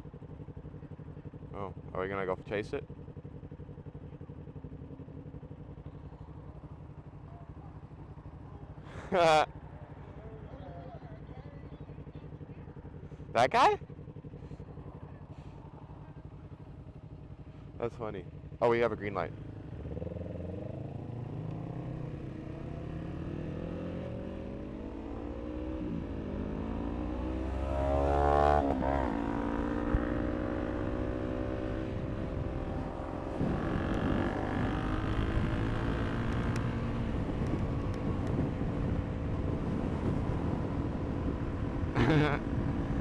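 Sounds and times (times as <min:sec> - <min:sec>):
motorcycle engine accelerating: 0:11.9 - 0:43.0.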